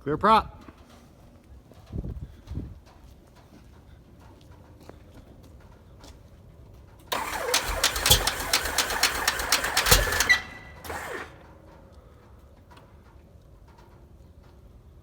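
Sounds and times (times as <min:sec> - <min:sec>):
aircraft engine cranking and firing: 0:07.1 - 0:11.9.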